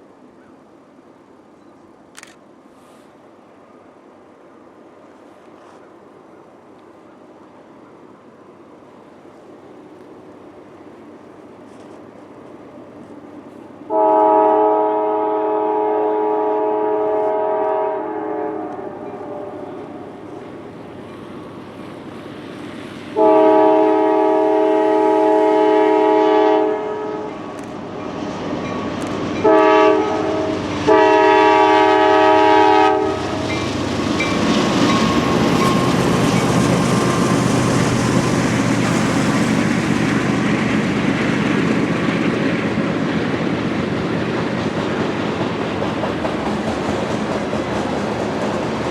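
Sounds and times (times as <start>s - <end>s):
train rumbling past: 0.0s - 48.9s
locomotive air horn: 13.9s - 19.8s, 23.2s - 27.4s, 29.4s - 33.5s
wheels clacking over rail joints: 33.2s - 48.9s.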